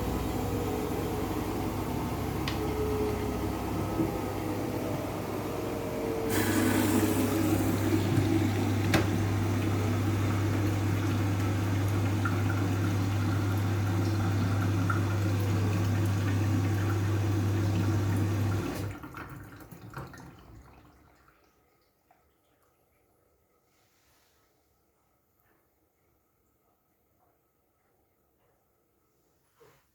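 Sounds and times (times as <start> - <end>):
water rushing: 0.0 - 18.8
washing machine electric hum: 0.0 - 29.9
water trickling away: 6.3 - 23.6.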